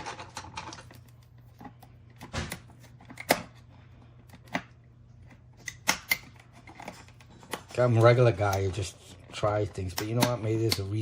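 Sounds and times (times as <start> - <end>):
plastic clips snapping: 5.6 - 6.9, 9.8 - 11.0.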